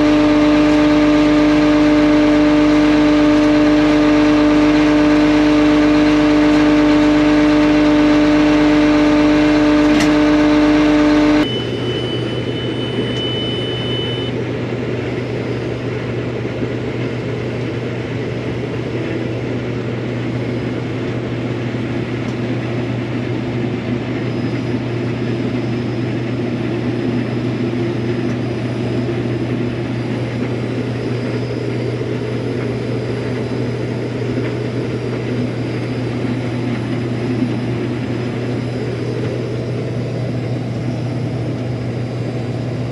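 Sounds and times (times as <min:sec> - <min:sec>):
short high beep: 0:00.0 - 0:14.4
farm machinery engine running: 0:00.0 - 0:42.9.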